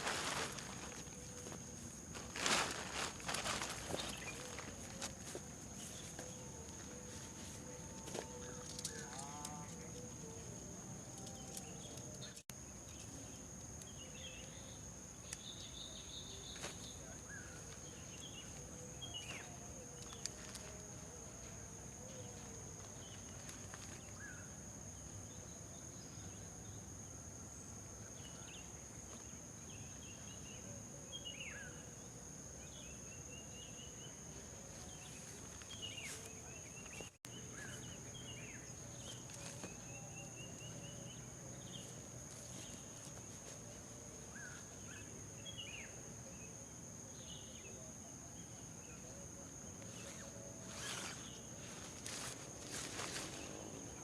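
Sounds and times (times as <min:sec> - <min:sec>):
high-pitched insect drone: 0:49.8 - 0:54.0.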